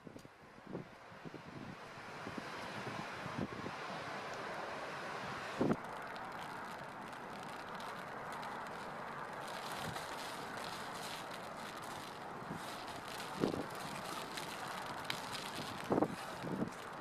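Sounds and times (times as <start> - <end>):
wind rushing on microphone: 0.0 - 4.1, 5.2 - 5.8, 11.6 - 17.0.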